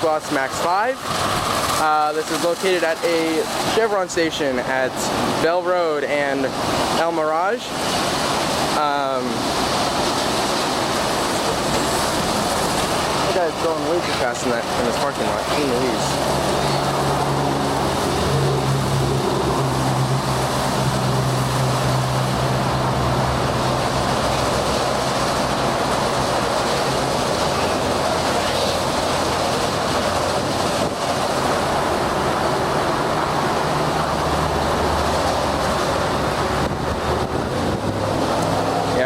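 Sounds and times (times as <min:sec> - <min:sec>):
spraying water hiss: 0:00.0 - 0:39.0
low motor hum: 0:16.1 - 0:39.0.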